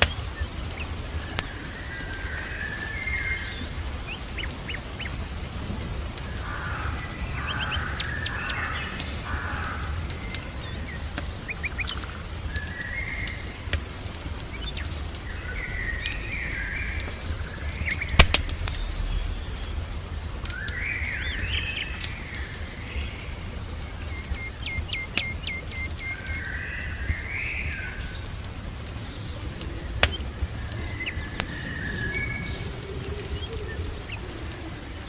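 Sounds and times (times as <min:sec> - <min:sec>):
small birds chirping: 0:00.0 - 0:35.0
steady low rumble: 0:00.0 - 0:35.0
wood fire crackling: 0:00.0 - 0:35.0
sharp pop from fire: 0:18.2 - 0:19.4.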